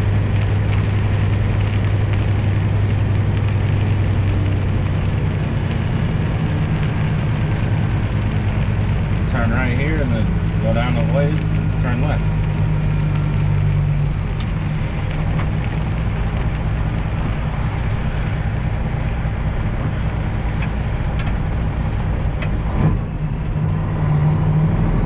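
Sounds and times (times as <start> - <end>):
rain: 0.0 - 25.0
road noise: 0.0 - 25.0
truck engine running: 0.0 - 25.0.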